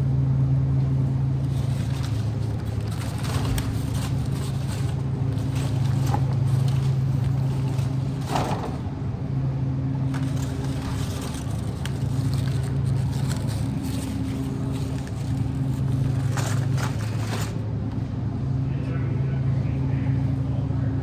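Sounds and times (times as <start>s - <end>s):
shopping cart rolling: 0.7s - 8.9s, 10.0s - 17.8s.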